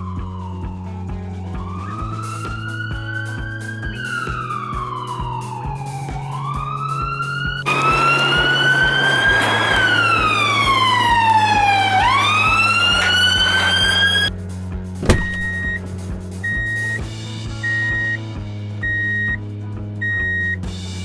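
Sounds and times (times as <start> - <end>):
electronic siren wailing: 5.8 - 14.3.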